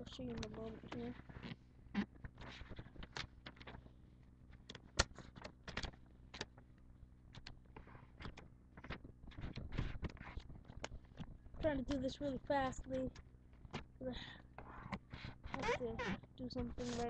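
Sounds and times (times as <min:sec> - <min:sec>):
paper rustling and crackling: 0:04.6 - 0:06.6, 0:07.4 - 0:11.6, 0:16.7 - 0:17.0
sharp paper crack: 0:04.6 - 0:06.6, 0:07.3 - 0:11.3.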